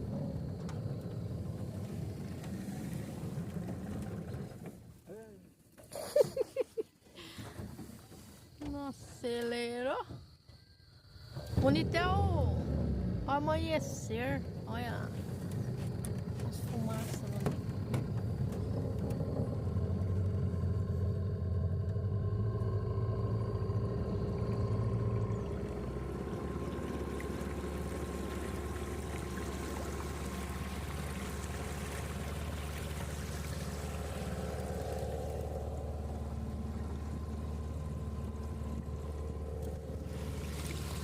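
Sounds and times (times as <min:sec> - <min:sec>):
boat motor running: 0:00.0 - 0:05.9, 0:11.3 - 0:41.0
water rushing: 0:11.4 - 0:41.0.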